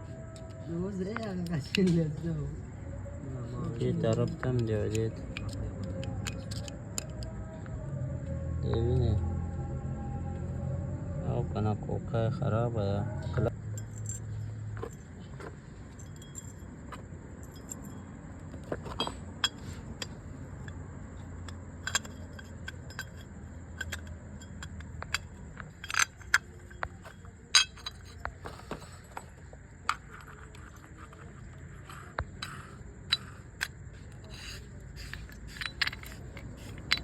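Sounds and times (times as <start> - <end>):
low steady hum: 0.0 - 37.0
faint clicks of small metal parts: 3.7 - 7.8, 13.6 - 37.0
metallic clinks of hand tools: 15.9 - 18.1, 21.4 - 31.2, 32.3 - 37.0.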